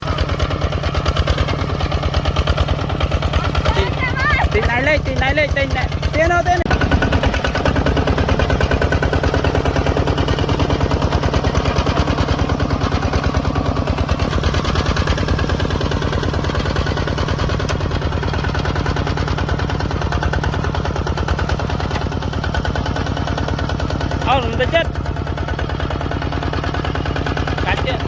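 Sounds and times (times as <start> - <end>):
tractor engine chugging: 0.0 - 28.0.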